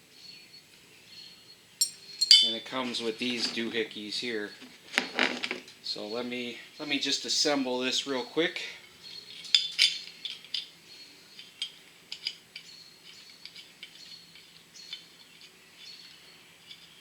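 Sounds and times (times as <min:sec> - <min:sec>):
metal tool parts clicking: 0:01.8 - 0:02.6, 0:09.2 - 0:10.7, 0:11.4 - 0:17.0.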